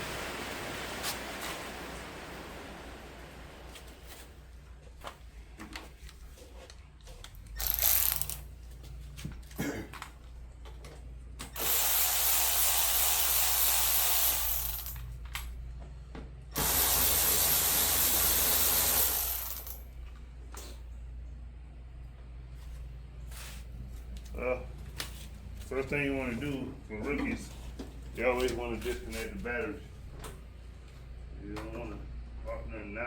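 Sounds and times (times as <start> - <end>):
power tool running: 7.6 - 8.4, 11.6 - 15.0, 16.6 - 19.8.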